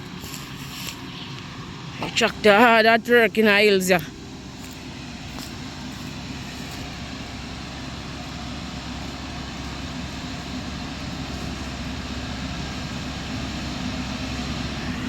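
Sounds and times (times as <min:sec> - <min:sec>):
backhoe engine running: 0:00.0 - 0:15.0.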